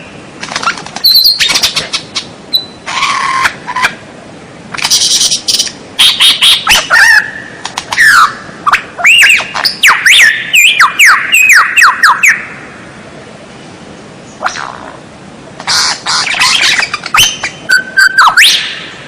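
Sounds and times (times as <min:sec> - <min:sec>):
bird singing whistled notes: 0:01.0 - 0:01.8, 0:02.5 - 0:02.8, 0:04.9 - 0:12.5, 0:16.3 - 0:19.0.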